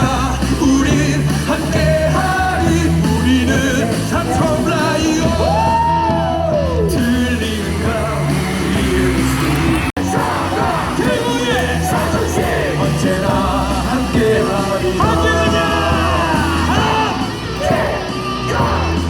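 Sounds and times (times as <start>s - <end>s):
cheering song over loudspeakers: 0.0s - 19.0s
crowd singing and shouting: 0.0s - 19.0s
gliding tone rising and falling: 7.0s - 9.9s.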